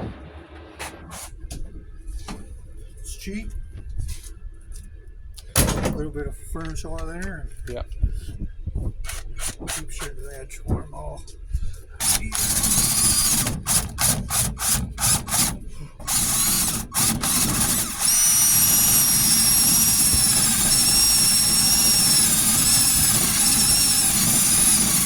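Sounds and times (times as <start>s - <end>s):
power sander whining and rasping: 12.3s - 13.6s, 16.1s - 25.0s.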